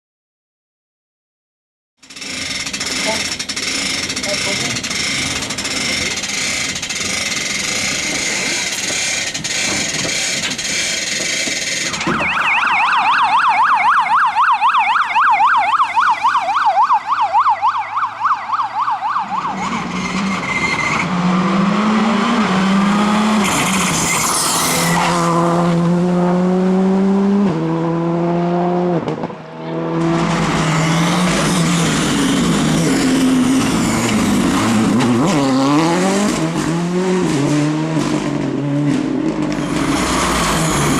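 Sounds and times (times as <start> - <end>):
rally car engine revving: 2.1 - 12.2, 19.4 - 40.9
car passing at full throttle: 15.5 - 40.9
tyre squeal: 19.5 - 21.1, 23.4 - 25.3.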